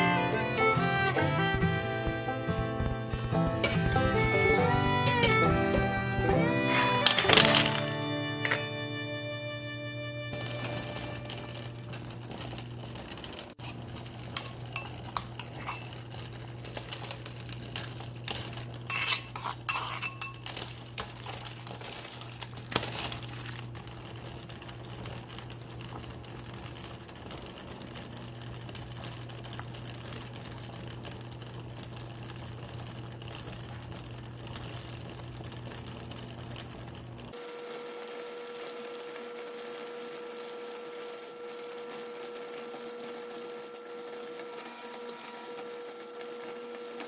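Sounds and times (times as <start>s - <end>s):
dishes and cutlery clinking: 13.6s - 16.0s, 18.3s - 21.7s.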